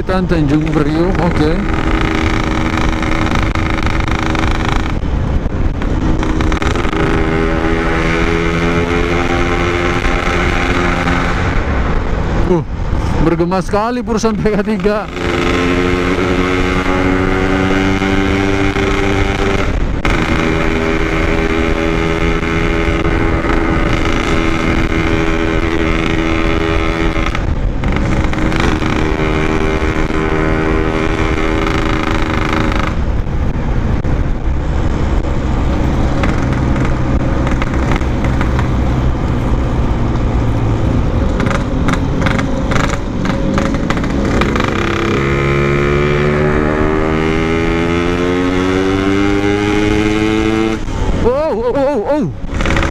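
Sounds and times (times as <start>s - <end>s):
two-stroke motorcycle engine running: 0.0s - 11.3s, 14.5s - 34.4s, 35.0s - 40.1s, 40.8s - 52.9s.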